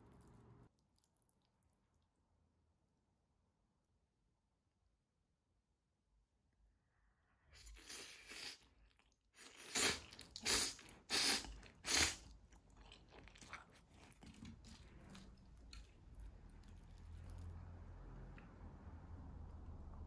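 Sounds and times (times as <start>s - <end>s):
close-up chewing: 7.6s - 17.8s.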